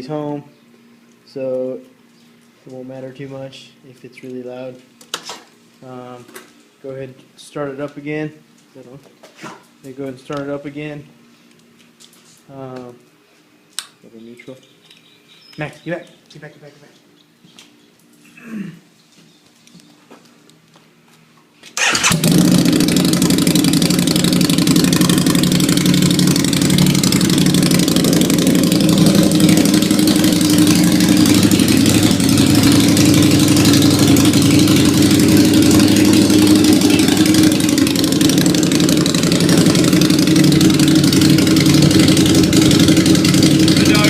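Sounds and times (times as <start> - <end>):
motorcycle engine starting and idling: 21.8 - 44.0.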